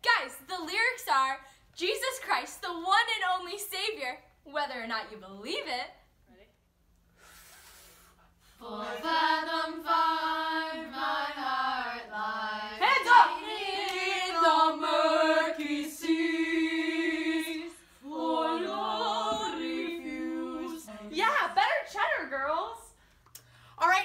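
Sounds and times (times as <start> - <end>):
women singing held notes: 8.6 - 21.2.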